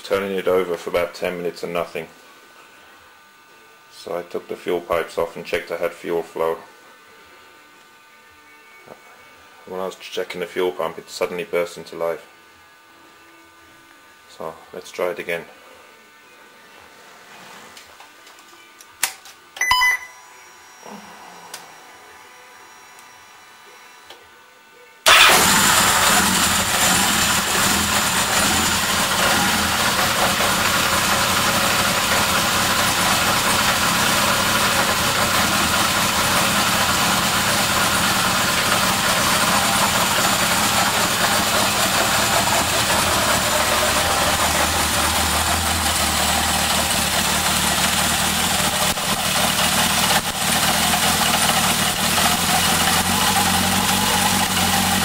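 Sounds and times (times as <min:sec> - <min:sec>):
motorcycle engine idling: 0:25.1 - 0:55.0.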